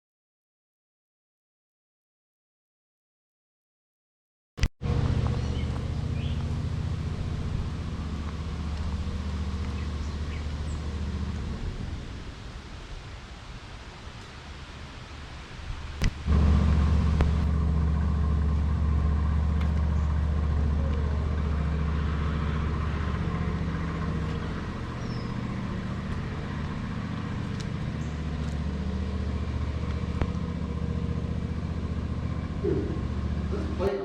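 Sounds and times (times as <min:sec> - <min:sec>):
engine idling: 0:04.8 - 0:12.7, 0:16.0 - 0:34.0.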